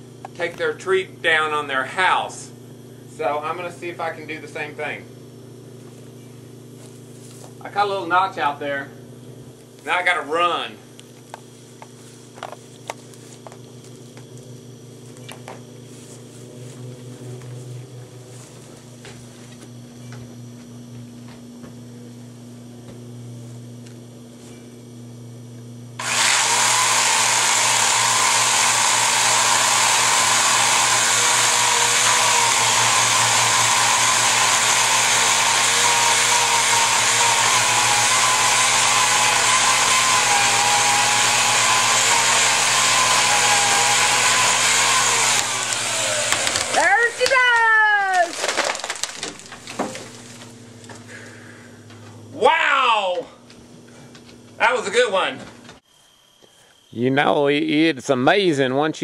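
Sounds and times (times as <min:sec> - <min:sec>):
low steady hum: 0:00.0 - 0:26.0
chainsaw cutting at high revs: 0:26.0 - 0:47.4.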